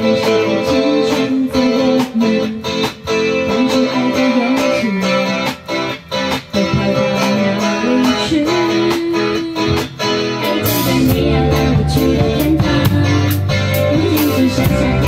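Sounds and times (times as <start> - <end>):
strummed guitar: 0.0 - 15.0
bass part: 10.7 - 15.0.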